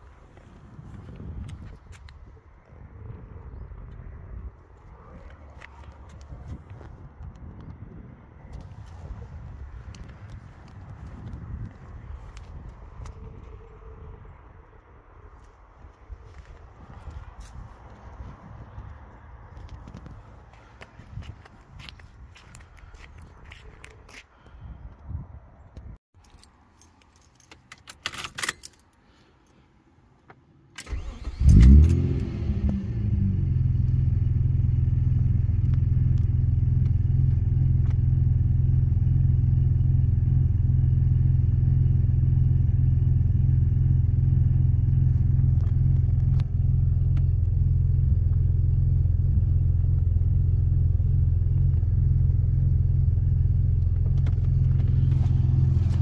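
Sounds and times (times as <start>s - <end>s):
keys jangling: 26.2s - 29.0s
car engine starting and idling: 30.7s - 56.0s.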